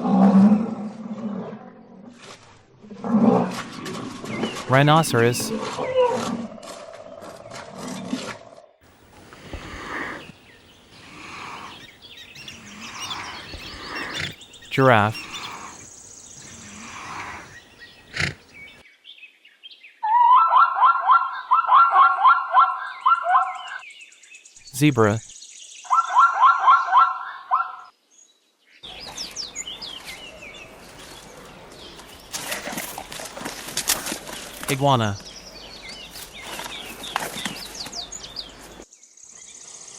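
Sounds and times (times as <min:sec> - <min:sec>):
rhinoceros grunting: 0:09.3 - 0:18.5
small birds chirping: 0:09.4 - 0:20.0, 0:22.7 - 0:39.9.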